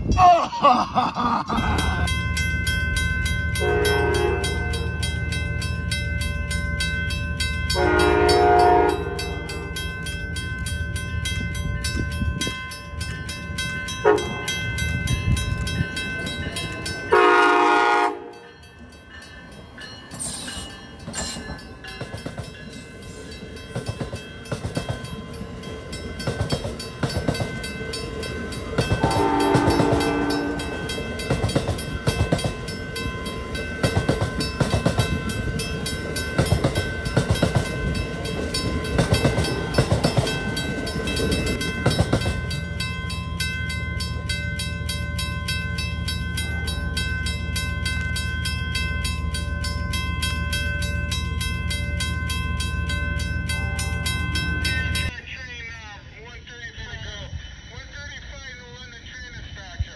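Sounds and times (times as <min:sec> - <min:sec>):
train horn blasts: 0:03.6 - 0:04.9, 0:07.7 - 0:09.5, 0:14.0 - 0:14.5, 0:17.1 - 0:18.5, 0:29.0 - 0:30.8
train wheels clacking on rails: 0:18.3 - 0:55.1.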